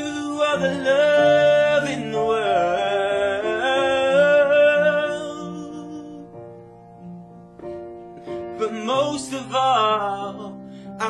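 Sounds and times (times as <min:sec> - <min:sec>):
acoustic guitar: 0:00.0 - 0:11.0.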